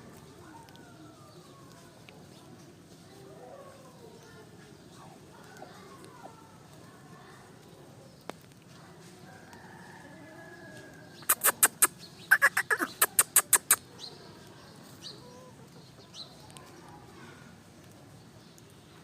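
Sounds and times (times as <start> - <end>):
chicken squawk: 11.2 - 13.8
high chirps: 11.2 - 13.8.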